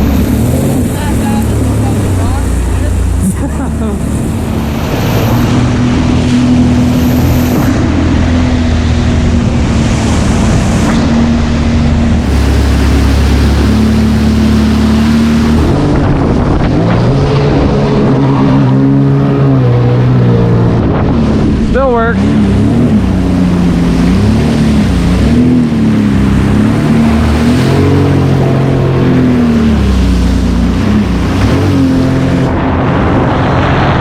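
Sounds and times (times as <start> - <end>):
water noise: 0.0 - 34.0
watercraft engine droning: 0.0 - 34.0
wind noise: 0.0 - 34.0.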